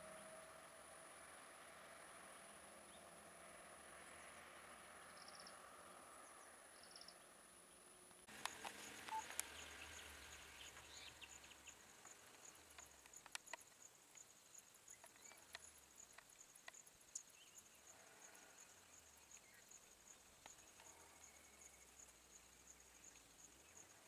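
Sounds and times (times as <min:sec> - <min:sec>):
small clicks: 0:08.3 - 0:11.4, 0:12.0 - 0:14.3, 0:14.9 - 0:16.9.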